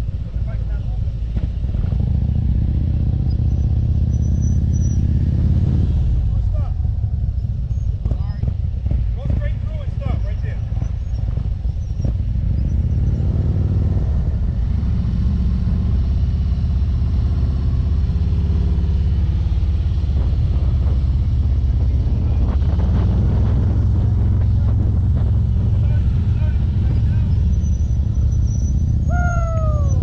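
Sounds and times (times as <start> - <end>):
motorcycle engine running: 0.0 - 30.0
wind on microphone: 19.6 - 28.1, 29.0 - 30.0.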